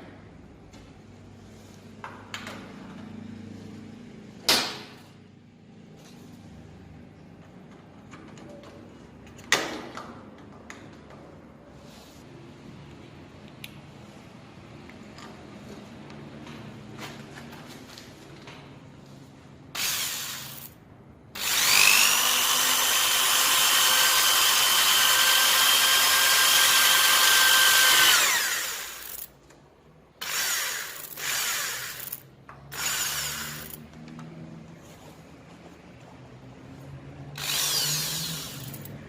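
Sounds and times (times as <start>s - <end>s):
electric power tool whining: 21.4s - 29.2s, 37.4s - 38.9s.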